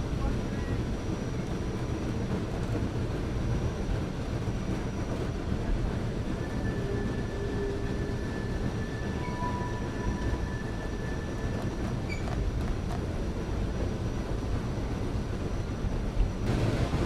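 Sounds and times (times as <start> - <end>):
train rumbling on rails: 0.0 - 17.0
faint high squeal: 6.3 - 12.4.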